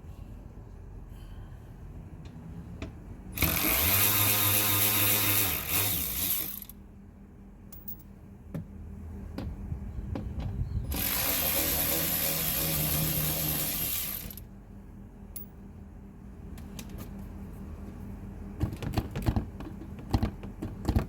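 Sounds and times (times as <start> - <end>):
ratcheting power tool whirring: 3.4 - 6.8, 10.9 - 14.4.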